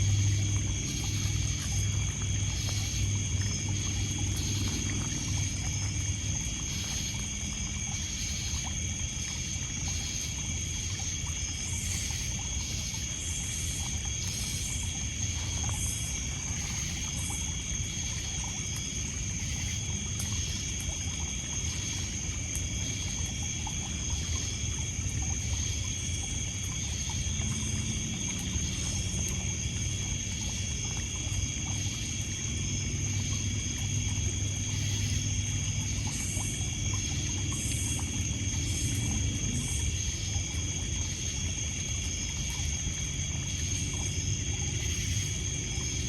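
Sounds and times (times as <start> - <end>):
crickets and insects trilling: 0.0 - 46.0.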